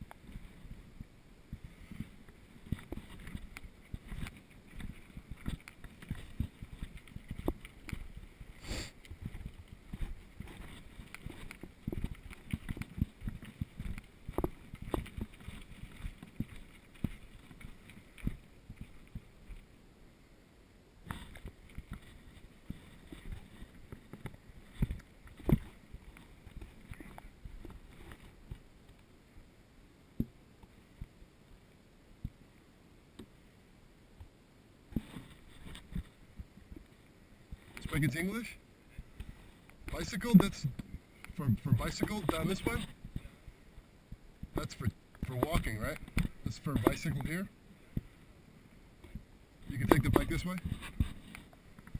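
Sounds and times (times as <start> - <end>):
brief hiss: 8.6 - 9.0.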